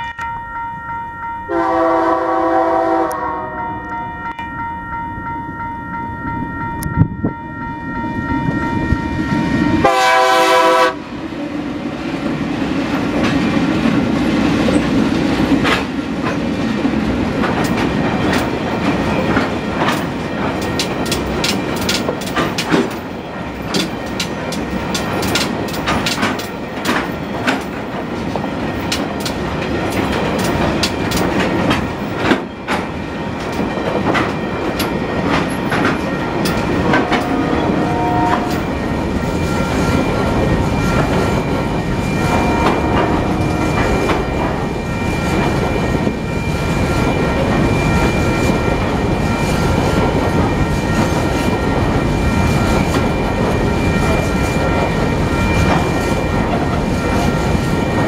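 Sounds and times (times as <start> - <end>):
train wagons rolling past: 8.9 - 58.0
wheels clicking over rail joints: 12.8 - 37.4.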